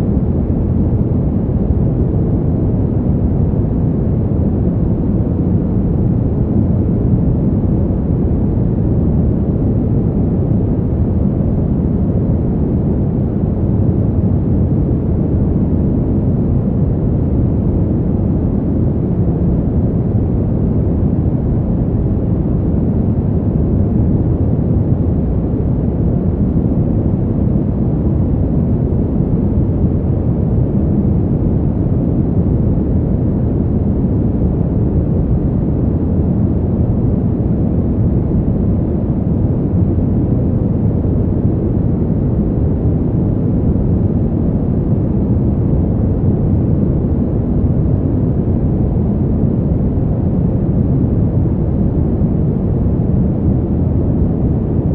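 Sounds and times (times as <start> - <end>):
steady low wind: 0.0 - 54.9.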